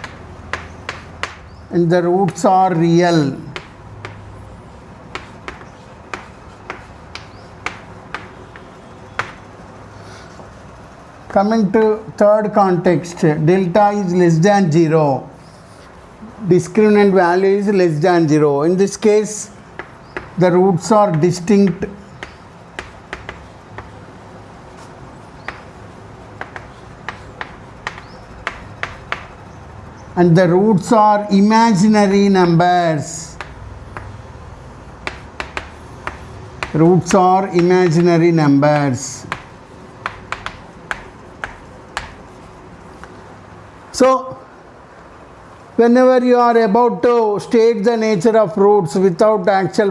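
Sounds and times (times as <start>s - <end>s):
pen tapping on writing surface: 0.0s - 1.4s, 5.1s - 9.5s, 21.1s - 24.0s, 26.4s - 29.4s, 33.4s - 34.2s, 35.0s - 36.8s, 38.8s - 42.2s.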